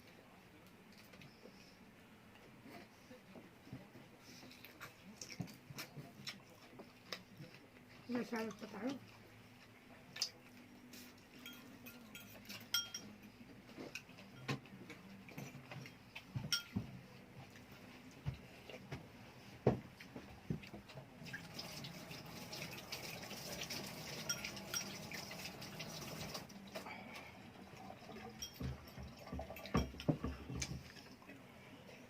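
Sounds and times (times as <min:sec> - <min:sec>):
cutlery and dishes clinking: 0:11.3 - 0:14.7, 0:15.3 - 0:16.9, 0:24.0 - 0:25.6, 0:28.1 - 0:30.8.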